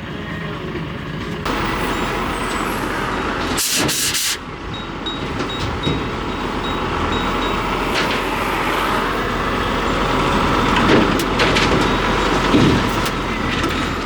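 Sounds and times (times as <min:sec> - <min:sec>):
quick hissing blasts: 0:03.6 - 0:04.4.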